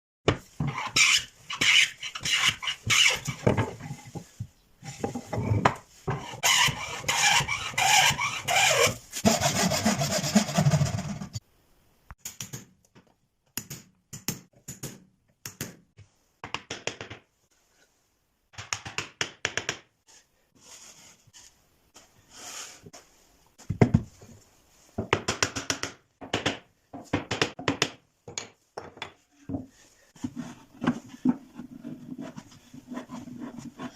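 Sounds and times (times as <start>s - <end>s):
hand tools scraping wood: 0.6s - 11.4s, 30.1s - 33.9s.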